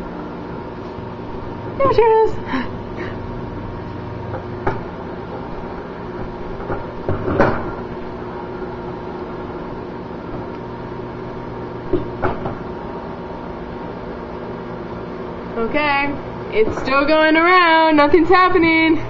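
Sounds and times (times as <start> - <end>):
microwave oven humming: 0.0 - 19.0.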